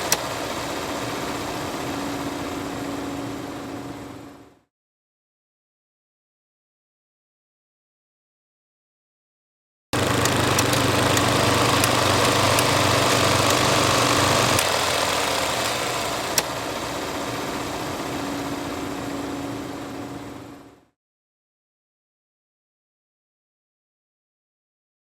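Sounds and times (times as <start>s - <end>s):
film projector rattling: 0.0s - 2.0s, 10.0s - 18.7s
sharp clicks: 10.0s - 16.6s.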